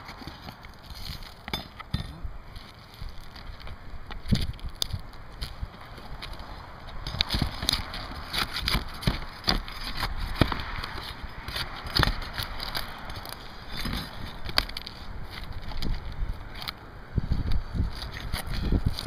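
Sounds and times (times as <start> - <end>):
roof shingles being pried up: 7.0 - 16.8.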